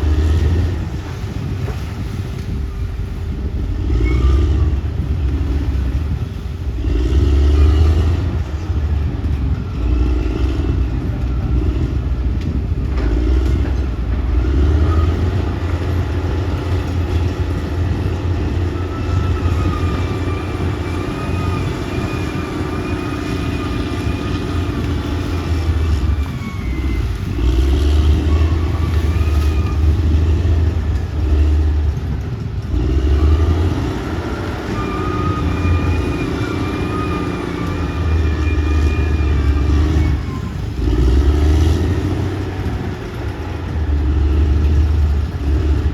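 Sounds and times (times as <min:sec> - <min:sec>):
bulldozer diesel engine: 0:00.0 - 0:45.9.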